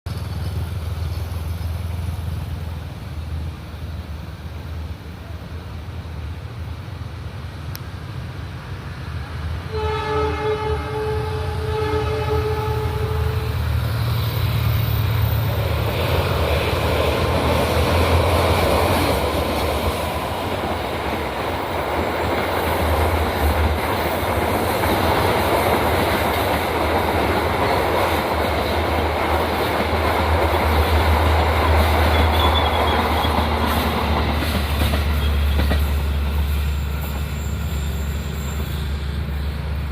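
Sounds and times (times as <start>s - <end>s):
train engine rumble: 0.1s - 39.9s
train wheels on rails: 0.1s - 39.9s
locomotive horn: 9.6s - 13.7s.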